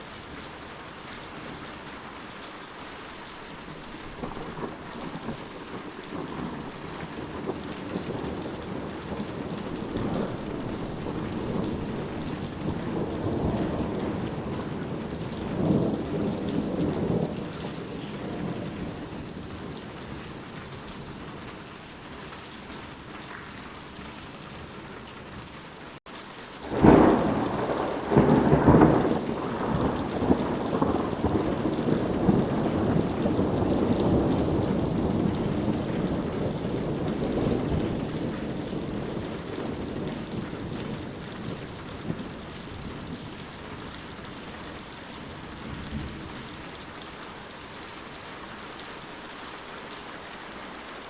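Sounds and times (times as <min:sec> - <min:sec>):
heavy rain: 0:00.0 - 0:51.0
distant rolling thunder: 0:03.9 - 0:21.6, 0:26.6 - 0:47.0
loud thunderclap: 0:04.2 - 0:20.2, 0:26.6 - 0:43.2.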